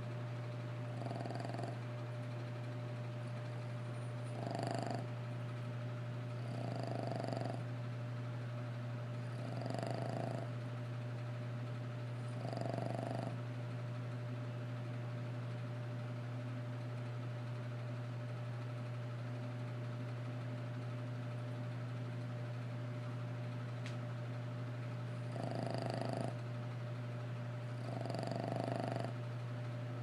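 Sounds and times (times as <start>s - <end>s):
dog snoring: 0.8s - 1.9s, 4.0s - 5.2s, 6.3s - 7.7s, 9.2s - 10.7s, 12.2s - 13.4s, 25.1s - 26.4s, 27.7s - 29.2s.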